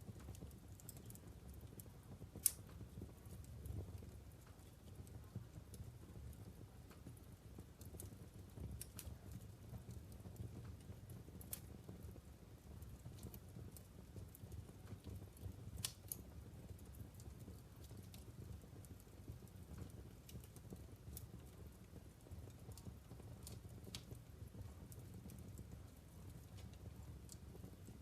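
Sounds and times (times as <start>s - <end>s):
low rumble of burning logs: 0.0s - 28.0s
wood fire crackling and popping: 0.0s - 28.0s.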